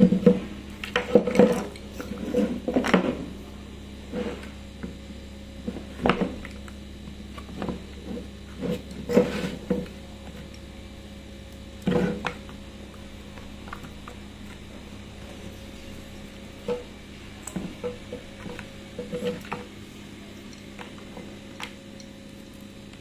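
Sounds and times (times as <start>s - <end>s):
steady low hum: 0.0s - 23.0s
parts knocking and rubbing: 7.4s - 10.0s, 17.6s - 19.7s.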